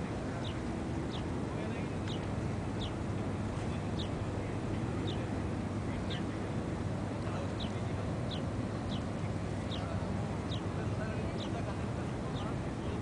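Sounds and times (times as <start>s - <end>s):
low background rumble: 0.0s - 13.0s
small bird chirping: 0.4s - 1.3s, 2.0s - 3.0s, 3.8s - 4.2s, 7.5s - 10.8s.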